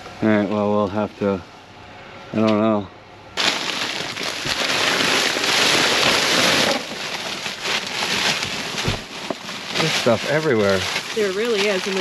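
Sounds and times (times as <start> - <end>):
plastic bags crinkling: 3.4 - 12.0.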